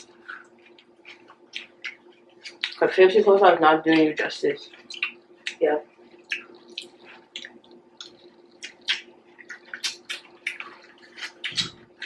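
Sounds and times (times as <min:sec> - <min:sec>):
close chewing with wet smacking: 0:00.0 - 0:02.9, 0:04.7 - 0:05.6, 0:06.2 - 0:12.0.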